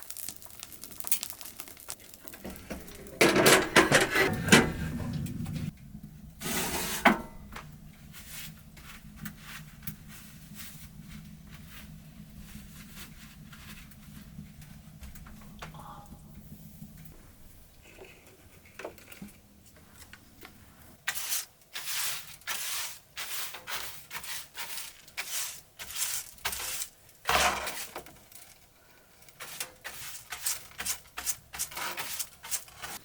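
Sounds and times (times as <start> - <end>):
short rustling and scraping strokes: 6.4 - 7.4, 8.0 - 14.7, 20.6 - 28.1.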